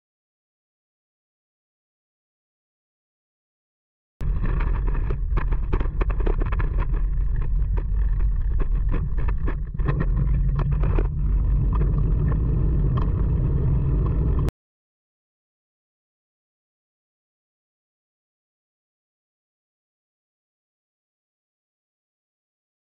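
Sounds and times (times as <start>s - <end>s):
sharp clicks and crackles: 4.2s - 14.5s
wind buffeting microphone: 4.2s - 14.5s.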